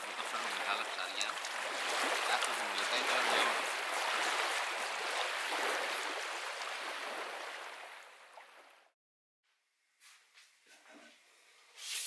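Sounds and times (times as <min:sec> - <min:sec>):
water dripping: 0:00.0 - 0:07.2
water splashing and sloshing: 0:00.0 - 0:09.0.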